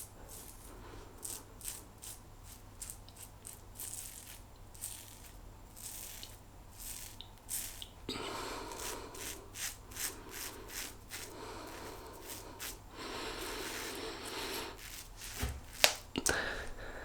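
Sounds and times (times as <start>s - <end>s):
razor scraping stubble: 0.0s - 16.8s.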